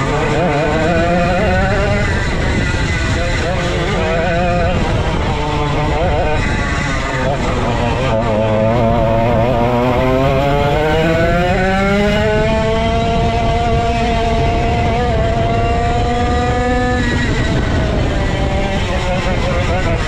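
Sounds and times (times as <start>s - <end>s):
go-kart engine accelerating: 0.0s - 20.0s.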